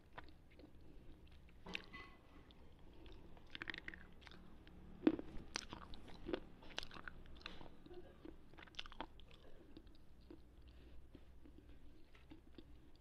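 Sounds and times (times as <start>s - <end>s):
chewing crisp crunches: 2.9s - 13.0s.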